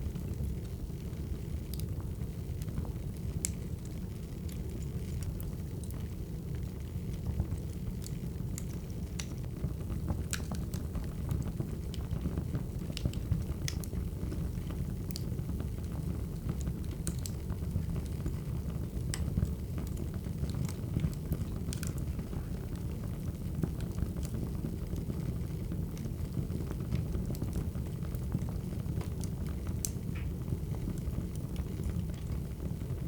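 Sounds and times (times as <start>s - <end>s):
firewood crackling: 7.5s - 11.0s, 12.7s - 25.1s, 25.8s - 33.0s.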